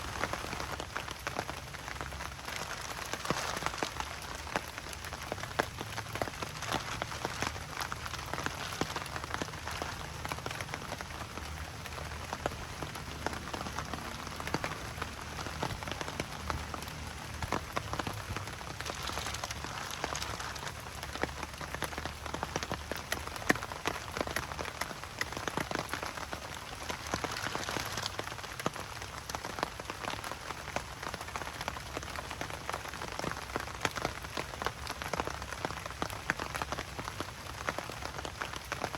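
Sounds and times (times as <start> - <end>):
rain pattering on a surface: 0.0 - 38.9.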